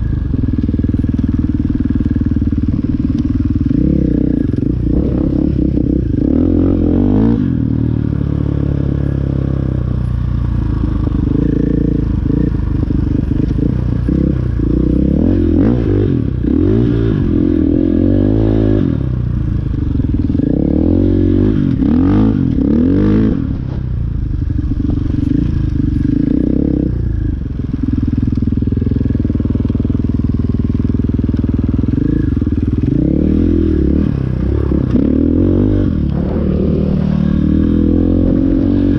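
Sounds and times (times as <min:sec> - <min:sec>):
dirt bike engine revving: 0:00.0 - 0:09.6, 0:10.9 - 0:23.8, 0:24.5 - 0:27.0, 0:29.0 - 0:38.9.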